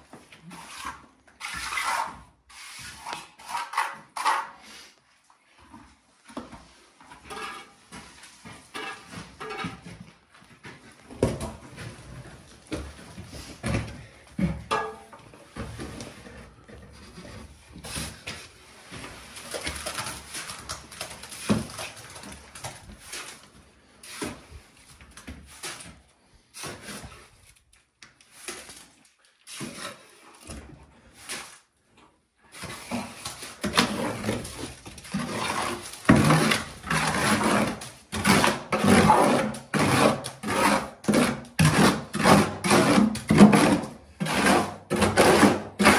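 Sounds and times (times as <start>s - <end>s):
hand tool scraping: 0.4s - 4.9s, 7.2s - 8.0s, 8.7s - 10.0s, 32.5s - 45.9s.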